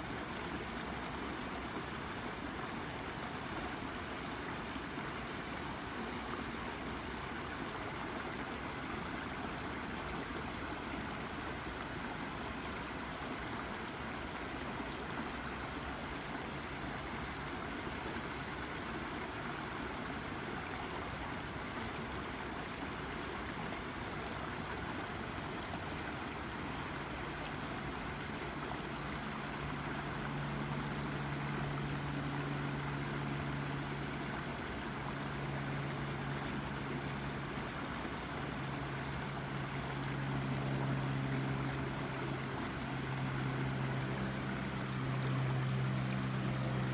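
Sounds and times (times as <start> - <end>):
brook water over rocks: 0.0 - 46.9
low steady hum: 0.0 - 46.9.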